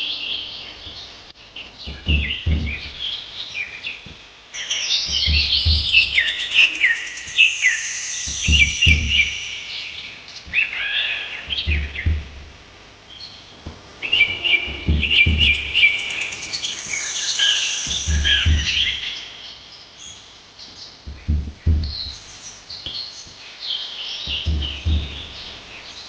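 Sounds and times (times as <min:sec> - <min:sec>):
small birds chirping: 0:00.0 - 0:26.0
low dull thumps: 0:00.8 - 0:04.4, 0:05.1 - 0:07.5, 0:08.2 - 0:17.0, 0:17.8 - 0:19.4, 0:21.0 - 0:23.4, 0:24.3 - 0:26.0.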